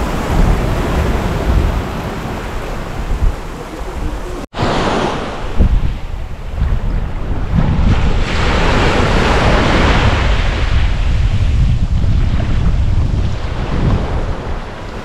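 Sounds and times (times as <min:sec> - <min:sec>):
ocean wave washing in: 0:00.0 - 0:11.6
wind buffeting microphone: 0:00.0 - 0:15.0.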